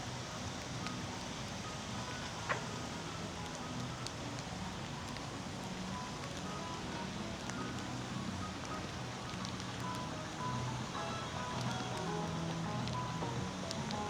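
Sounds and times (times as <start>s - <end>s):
faint music: 0.0s - 14.0s
steady rain falling: 0.0s - 14.0s.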